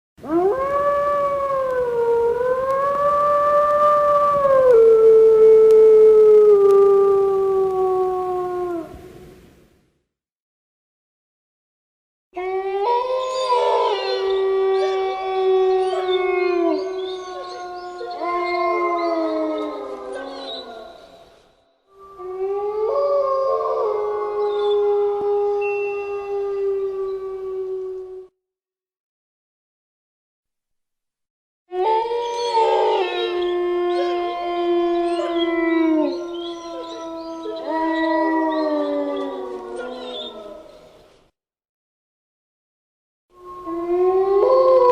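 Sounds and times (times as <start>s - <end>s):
wolves howling in chorus: 12.4s - 21.3s, 22.0s - 28.3s, 31.7s - 41.0s, 43.4s - 44.9s.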